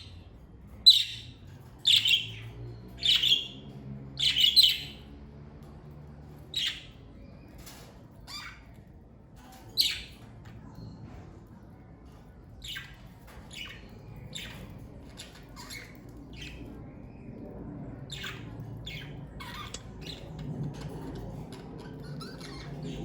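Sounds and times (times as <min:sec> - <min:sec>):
low steady hum: 0:00.0 - 0:23.0
budgerigars chirping and squawking: 0:00.8 - 0:05.1, 0:06.4 - 0:08.8, 0:12.6 - 0:16.6, 0:18.1 - 0:23.0.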